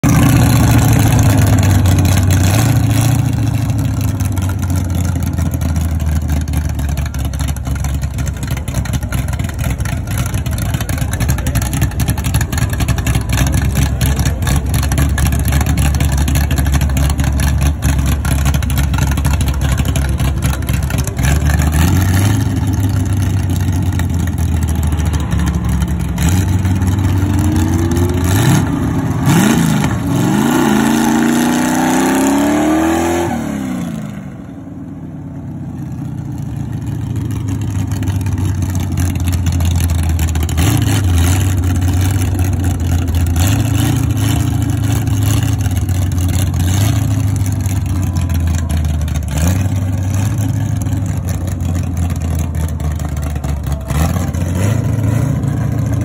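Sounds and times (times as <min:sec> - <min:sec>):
car engine revving: 0:00.0 - 0:34.5, 0:36.8 - 0:56.0.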